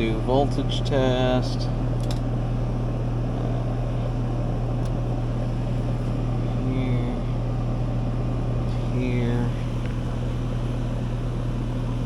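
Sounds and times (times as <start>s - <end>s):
air conditioning units humming: 0.0s - 12.0s
sharp click: 2.0s - 2.3s.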